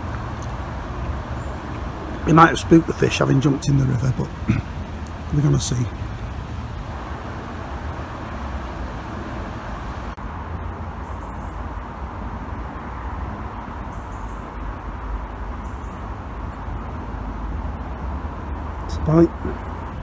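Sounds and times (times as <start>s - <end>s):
river rushing: 0.0s - 10.2s
wind rumble on microphone: 0.0s - 20.0s.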